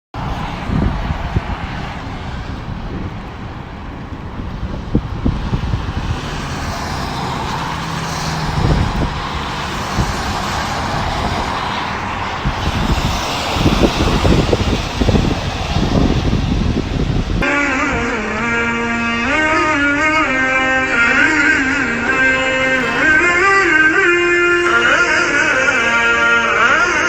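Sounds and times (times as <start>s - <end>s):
low rumbles: 0.2s - 25.6s
steady rain: 5.8s - 17.4s.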